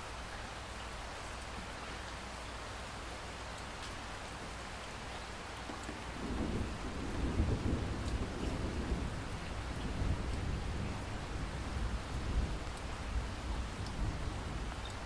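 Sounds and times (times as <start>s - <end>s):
steady rain falling: 0.0s - 15.0s
thunder rumbling: 6.0s - 14.8s.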